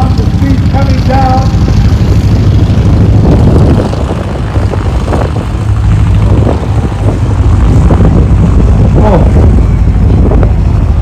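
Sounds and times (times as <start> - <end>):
light aircraft engine and propeller: 0.0 - 11.0.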